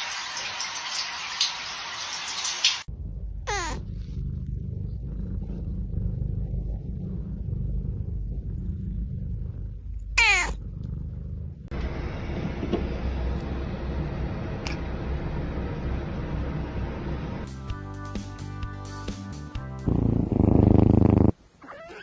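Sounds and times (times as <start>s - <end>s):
low rumble: 2.9s - 17.5s
cat meowing: 10.2s - 10.6s, 21.6s - 22.0s.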